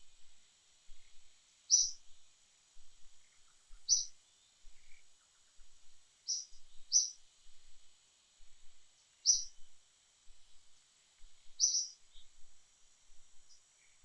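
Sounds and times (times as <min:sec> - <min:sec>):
faint high insect hum: 0:00.0 - 0:14.0
bird chirping: 0:01.7 - 0:02.0, 0:03.3 - 0:05.4, 0:06.3 - 0:07.2, 0:09.2 - 0:09.6, 0:11.5 - 0:12.3.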